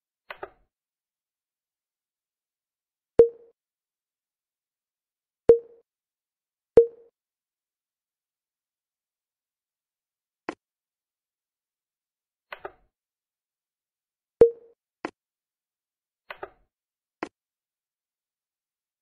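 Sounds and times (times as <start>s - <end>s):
ringing plop: 3.2s - 3.5s.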